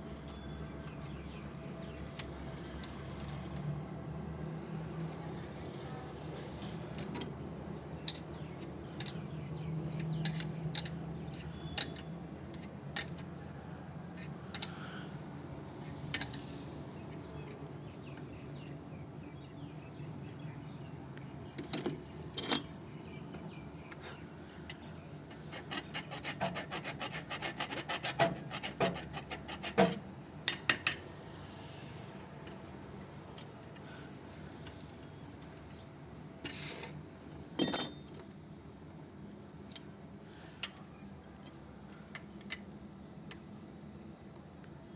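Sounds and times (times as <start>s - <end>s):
hand tools scraping metal pipe: 25.3s - 30.1s.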